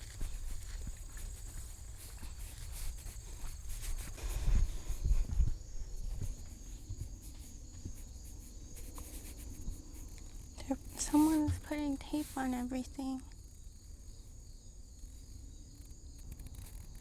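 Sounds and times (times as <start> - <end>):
footsteps outdoors: 0.0 - 13.0
heavy low thuds: 3.2 - 8.2.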